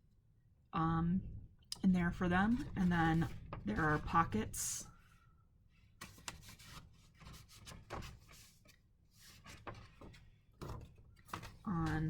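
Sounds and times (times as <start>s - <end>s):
paper pages rustling: 6.0s - 12.0s.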